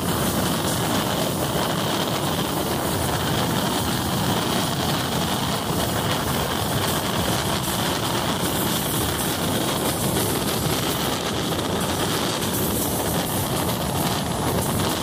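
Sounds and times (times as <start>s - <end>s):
moving train rumble: 0.0s - 15.0s.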